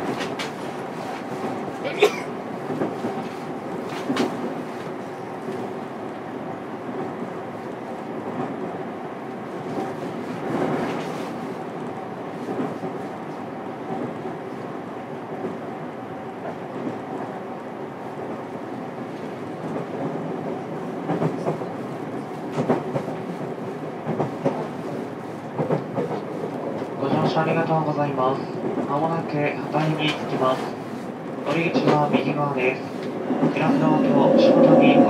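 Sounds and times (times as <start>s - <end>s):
train running gear hum: 0.0s - 35.0s.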